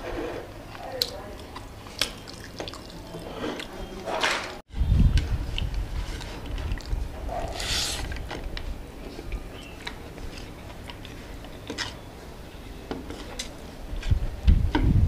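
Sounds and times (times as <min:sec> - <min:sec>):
short hiss: 0:07.6 - 0:08.1.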